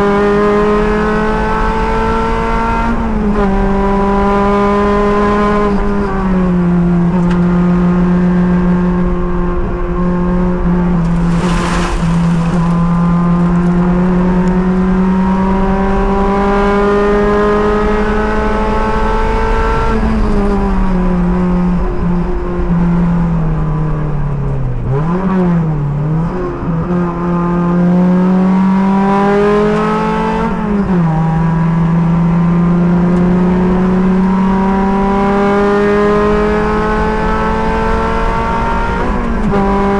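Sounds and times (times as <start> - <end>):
race car engine under load: 2.6 - 22.6.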